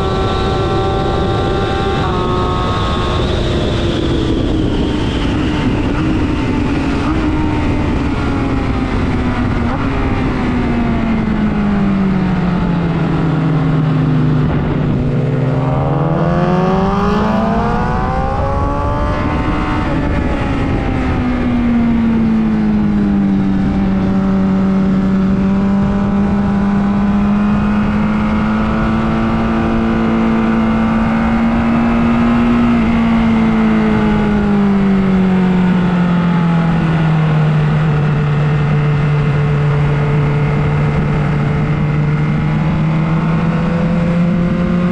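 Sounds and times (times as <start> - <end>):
motorcycle engine running: 5.3 - 44.9
rushing noise: 13.1 - 19.8.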